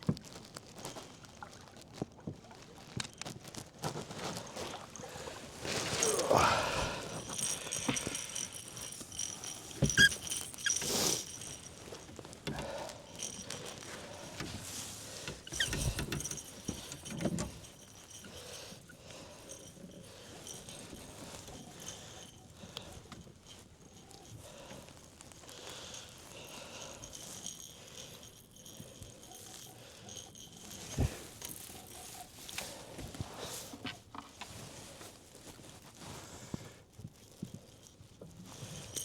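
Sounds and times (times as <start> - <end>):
rattling and clinking: 5.5 - 33.3, 37.2 - 39.0.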